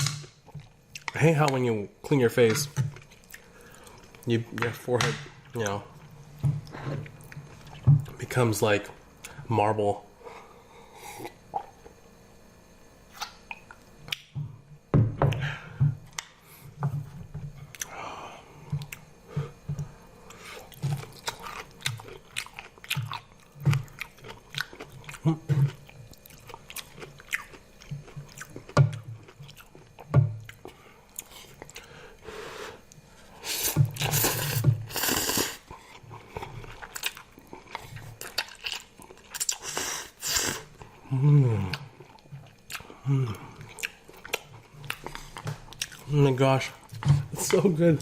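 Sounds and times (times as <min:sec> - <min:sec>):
person chewing noodles: 0:00.4 - 0:01.6, 0:02.9 - 0:04.3, 0:17.6 - 0:18.0, 0:18.6 - 0:46.1
slurping: 0:33.4 - 0:38.5.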